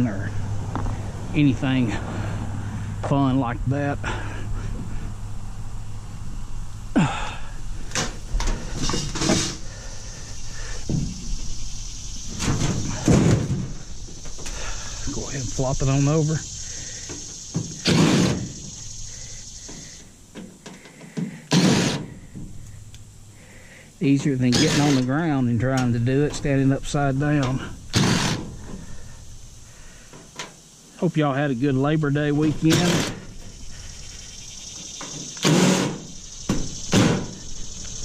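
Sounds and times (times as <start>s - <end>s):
metal cabinet clattering thuds: 12.4s - 13.8s.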